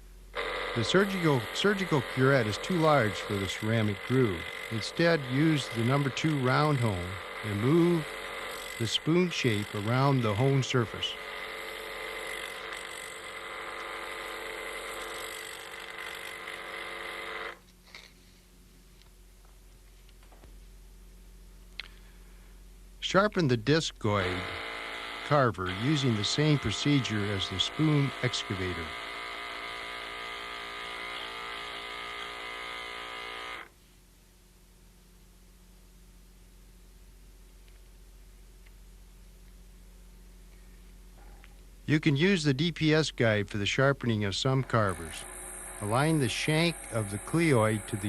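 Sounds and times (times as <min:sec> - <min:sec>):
honing machine whirring hum: 0:00.0 - 0:48.0
small electric motor whining: 0:00.3 - 0:18.1, 0:24.1 - 0:33.8, 0:44.0 - 0:48.0
faint low hum: 0:17.6 - 0:24.6, 0:33.6 - 0:48.0.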